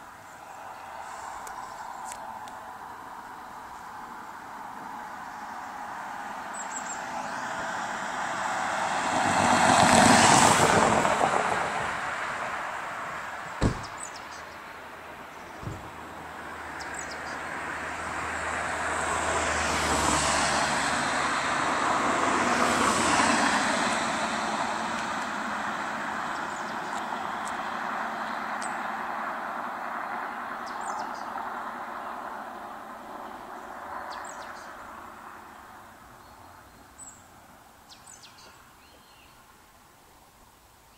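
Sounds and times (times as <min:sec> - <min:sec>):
car driving past: 0:05.3 - 0:14.2, 0:15.4 - 0:35.6
sharp knocks: 0:13.6 - 0:14.0, 0:15.6 - 0:16.0
low engine hum: 0:13.6 - 0:29.6.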